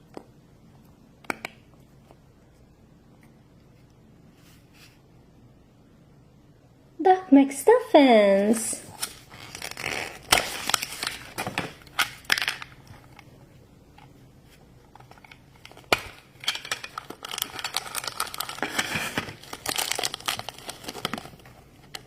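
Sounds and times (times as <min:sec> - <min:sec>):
packaging crinkling and tearing: 0:08.9 - 0:13.2, 0:14.9 - 0:22.0.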